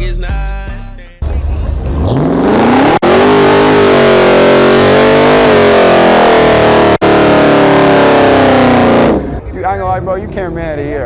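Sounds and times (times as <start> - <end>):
car engine at high revs: 1.2 - 11.0.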